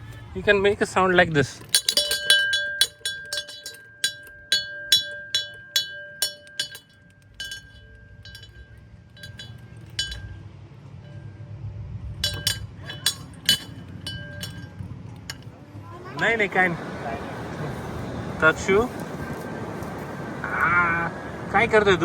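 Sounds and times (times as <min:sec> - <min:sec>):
metal chime struck: 0:01.7 - 0:10.4, 0:12.2 - 0:15.4.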